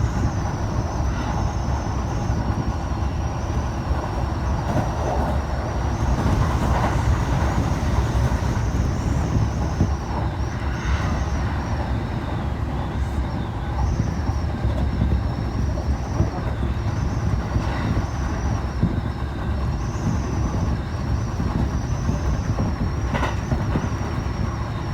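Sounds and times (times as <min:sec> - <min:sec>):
train rumbling: 0:00.0 - 0:24.9.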